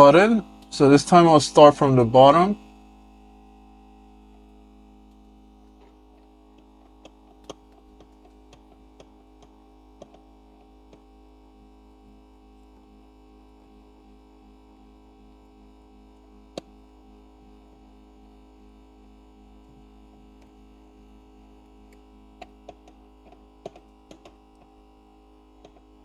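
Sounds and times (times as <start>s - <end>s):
machine hum: 0.0s - 15.3s.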